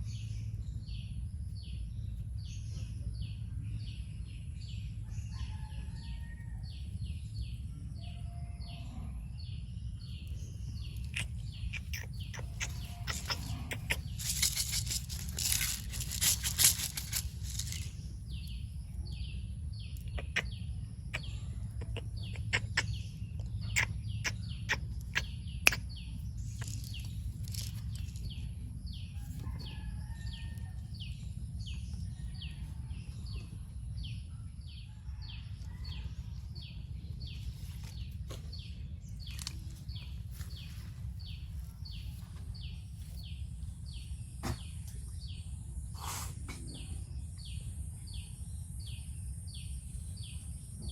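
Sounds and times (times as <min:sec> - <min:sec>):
steady low rumble: 0:06.5 - 0:45.9.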